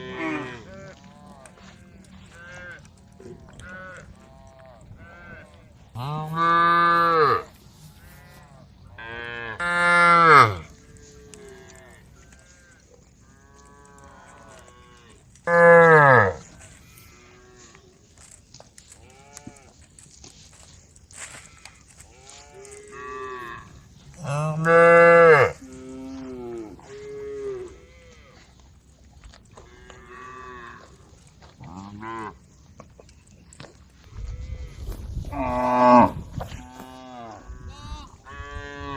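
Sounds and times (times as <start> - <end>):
cows mooing: 0.0 - 18.4, 19.0 - 28.6, 29.5 - 32.4, 34.2 - 38.9.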